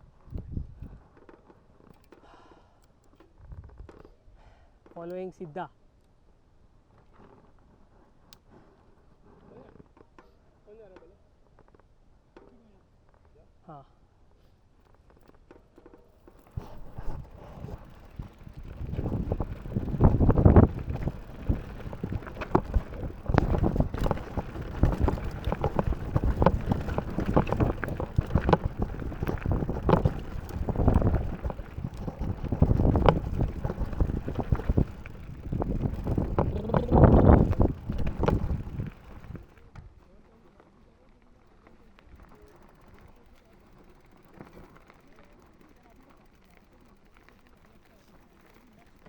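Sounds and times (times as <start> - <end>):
wind on microphone: 0.3 - 1.0, 16.6 - 39.5
bike rattles and knocks: 15.2 - 39.9, 42.1 - 49.0
bike tyres rumbling over rock: 16.4 - 39.7.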